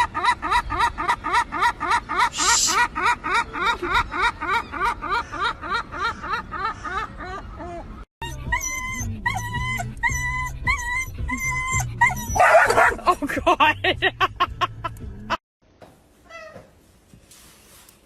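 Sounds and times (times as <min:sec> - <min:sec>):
dog whining: 0:08.2 - 0:12.8
dog yipping: 0:08.2 - 0:13.0.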